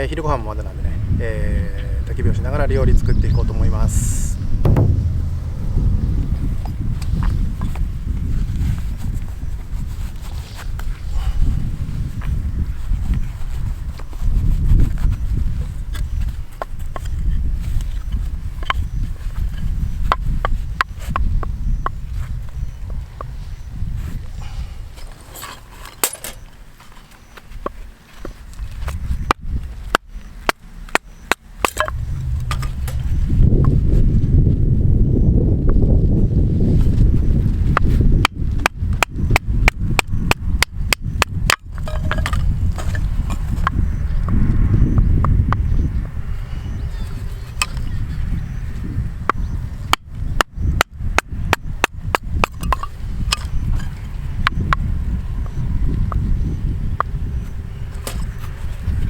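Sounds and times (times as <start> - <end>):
low rumble: 3.7 - 8.9, 31.8 - 36.4
firewood splitting knocks: 4.6 - 6.0.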